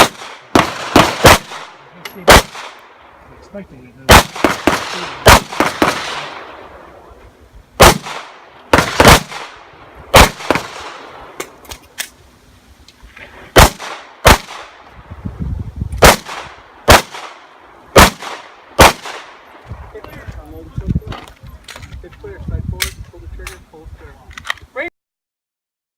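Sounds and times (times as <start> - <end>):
pistol shots with echo: 0.0 - 2.8, 4.1 - 6.6, 7.8 - 11.5, 13.6 - 14.8, 16.0 - 17.4, 18.0 - 19.4.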